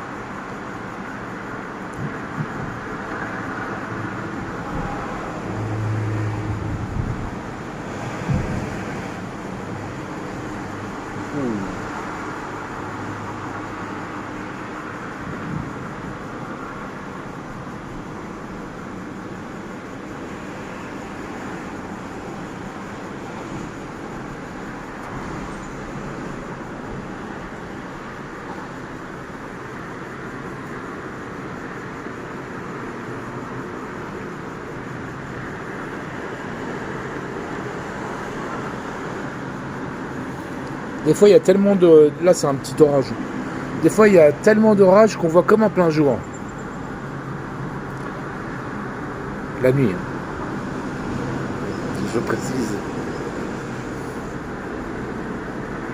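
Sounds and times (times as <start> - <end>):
distant road traffic hum: 0.0 - 55.9
low thump: 4.6 - 5.3, 8.2 - 8.9.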